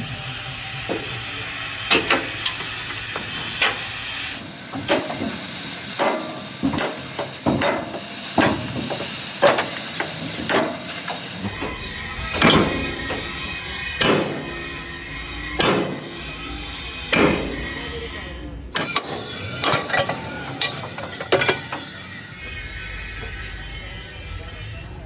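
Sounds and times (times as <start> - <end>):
sharp metal knocks: 6.0 - 11.7.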